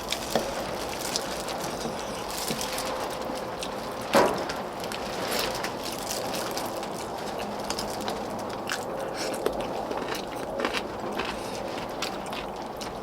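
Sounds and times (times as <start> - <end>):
chewing: 0.0 - 4.1, 4.9 - 13.0.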